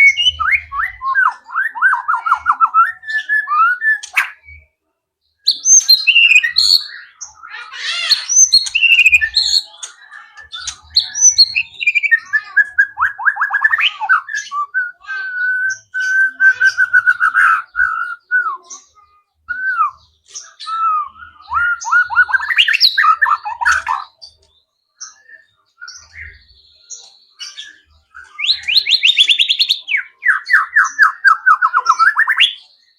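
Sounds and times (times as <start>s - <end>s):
bird singing varied whistles: 0.0s - 4.7s, 5.5s - 6.9s, 8.3s - 9.7s, 11.0s - 24.0s, 27.6s - 32.6s.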